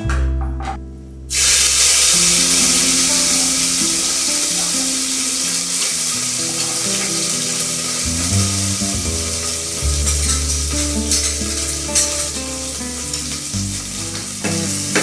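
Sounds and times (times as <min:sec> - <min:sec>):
food sizzling in a frying pan: 0:01.3 - 0:15.0
stirring in a pan: 0:02.4 - 0:15.0.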